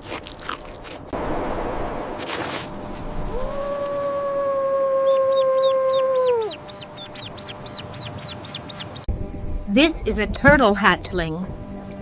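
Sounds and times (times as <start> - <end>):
animal long call: 3.2 - 9.0
bird short high chirps: 6.4 - 9.1.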